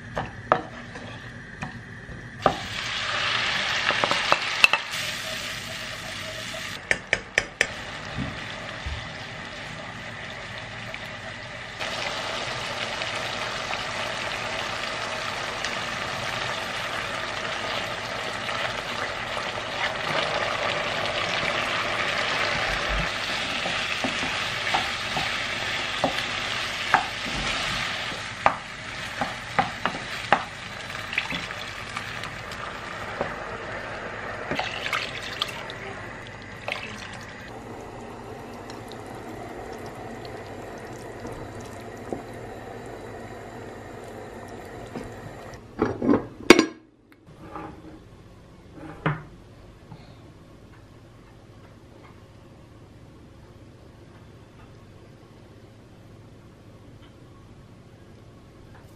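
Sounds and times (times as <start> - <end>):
food sizzling in a frying pan: 2.4 - 6.8, 7.7 - 45.5.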